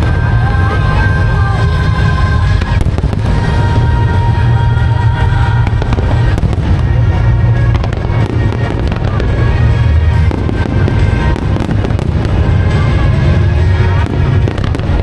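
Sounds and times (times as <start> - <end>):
deep rumble: 0.0 - 15.0
firework bangs and crackling: 0.0 - 15.0
music over loudspeakers: 0.0 - 15.0.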